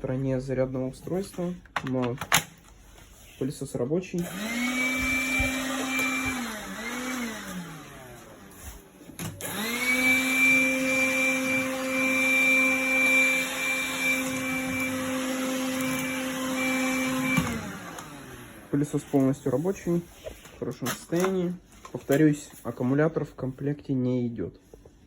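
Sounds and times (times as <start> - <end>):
vacuum cleaner motor whining: 4.2 - 19.2.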